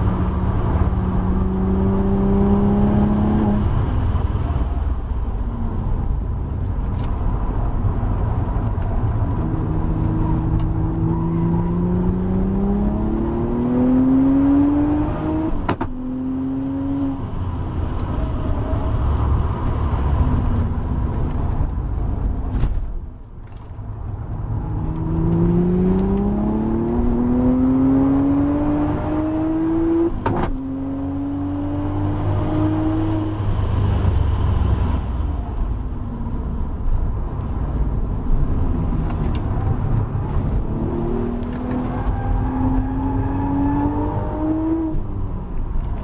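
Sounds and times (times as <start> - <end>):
car engine revving: 0.0 - 4.3, 8.6 - 20.4, 24.4 - 35.8, 37.2 - 46.0
road and wind noise: 0.0 - 46.0.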